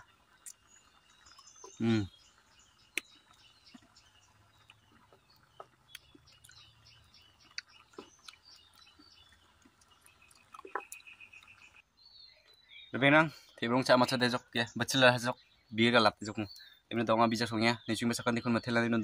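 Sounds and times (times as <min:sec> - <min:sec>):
person chewing fruit: 0:00.0 - 0:11.7
faint birds calling: 0:00.0 - 0:19.0.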